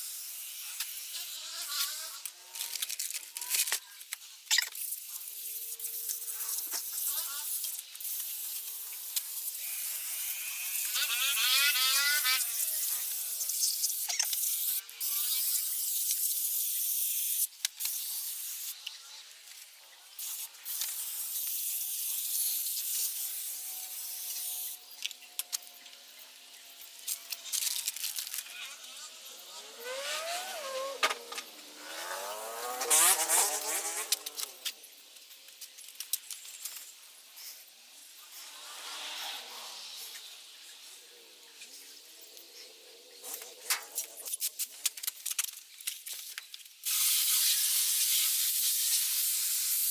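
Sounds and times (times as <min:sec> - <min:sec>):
motorcycle engine revving: 0:29.3 - 0:34.8.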